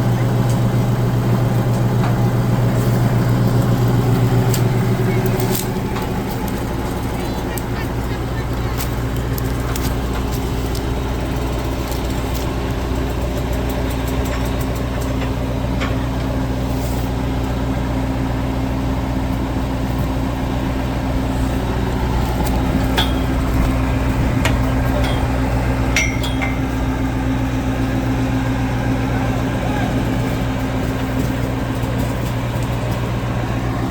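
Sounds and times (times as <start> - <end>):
truck diesel engine running: 0.0 - 33.9
light metallic clinks: 24.4 - 27.1.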